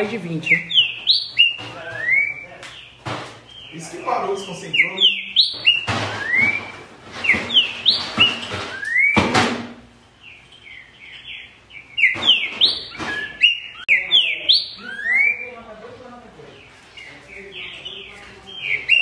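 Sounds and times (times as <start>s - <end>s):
bird singing whistled phrases: 0.4s - 2.9s, 4.4s - 9.2s, 10.7s - 15.6s, 18.6s - 19.0s
knock: 5.8s - 9.8s.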